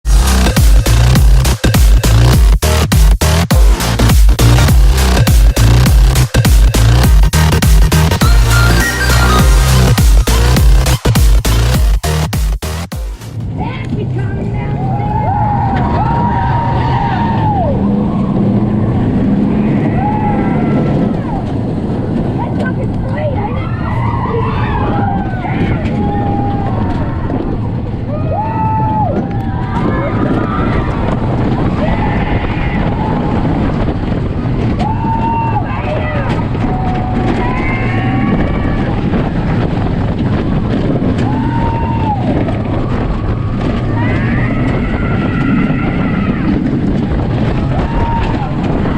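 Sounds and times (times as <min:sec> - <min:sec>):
low hum: 0:00.0 - 0:48.9
roller coaster rumble: 0:00.0 - 0:48.9
rushing wind: 0:13.3 - 0:48.9
riders screaming: 0:14.6 - 0:21.9, 0:23.3 - 0:39.6, 0:40.8 - 0:48.9
high arching cries: 0:19.4 - 0:21.4.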